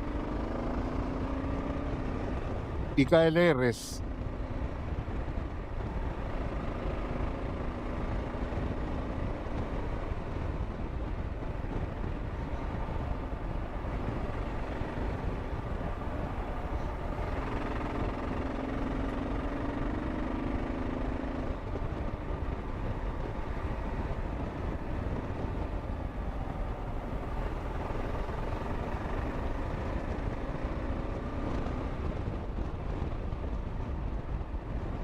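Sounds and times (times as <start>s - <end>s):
wind rushing over microphone: 0.0s - 35.0s
motorcycle engine running: 4.1s - 35.0s.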